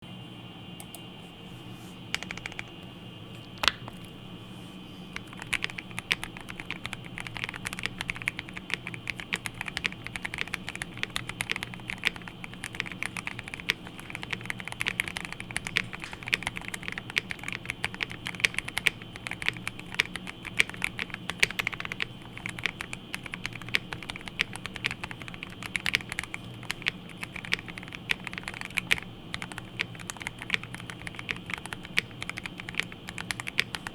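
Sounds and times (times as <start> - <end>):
mechanical keyboard typing: 2.2 - 2.8, 5.2 - 33.9.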